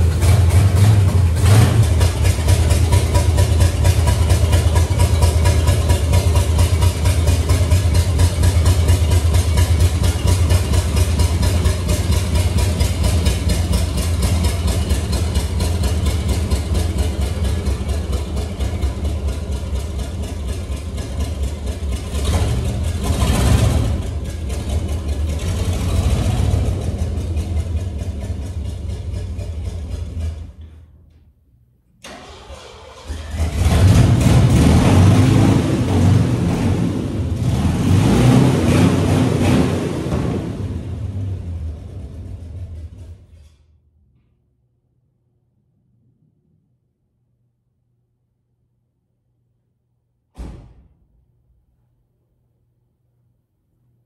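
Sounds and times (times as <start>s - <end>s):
rough vehicle engine running: 0.0s - 30.7s, 33.3s - 43.2s.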